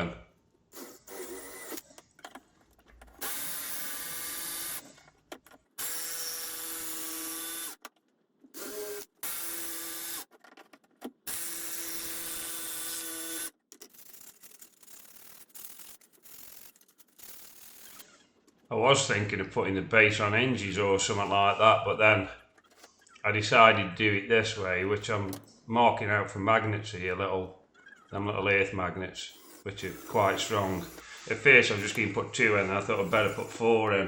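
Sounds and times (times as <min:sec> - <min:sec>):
electric power tool humming: 0:03.2 - 0:04.8, 0:05.8 - 0:07.8, 0:08.6 - 0:10.3, 0:11.3 - 0:13.5, 0:29.3 - 0:31.2, 0:32.9 - 0:33.9.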